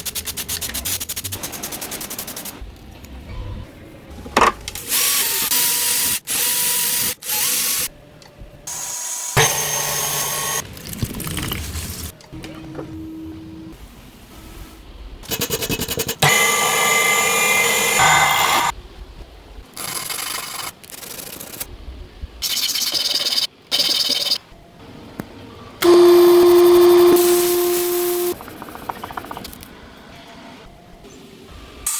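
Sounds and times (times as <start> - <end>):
motor humming: 16.2 - 18.7, 25.8 - 29.8
power tools grinding: 16.2 - 18.7.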